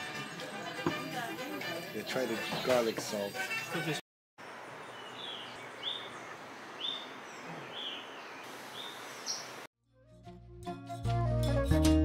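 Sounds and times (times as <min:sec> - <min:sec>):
outdoor background hiss: 0:01.1 - 0:09.7
bird chirping: 0:04.8 - 0:09.7.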